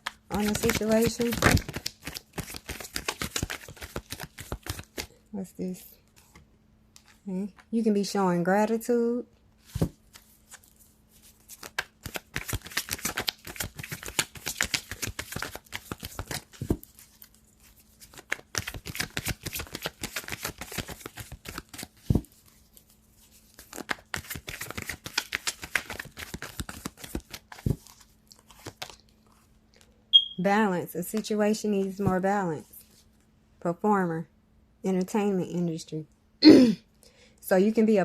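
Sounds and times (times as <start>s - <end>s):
cards shuffling: 0.0s - 5.1s, 9.6s - 29.5s.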